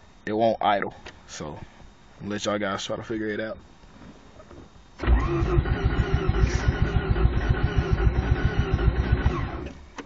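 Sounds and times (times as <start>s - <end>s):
car engine cranking on starter: 5.0s - 9.8s.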